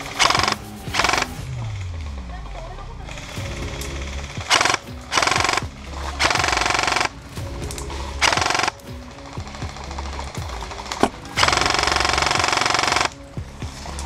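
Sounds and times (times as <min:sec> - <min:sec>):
airsoft guns firing bursts: 0:00.0 - 0:01.4, 0:03.1 - 0:07.2, 0:08.2 - 0:08.8, 0:09.7 - 0:13.2
background music: 0:00.0 - 0:14.0.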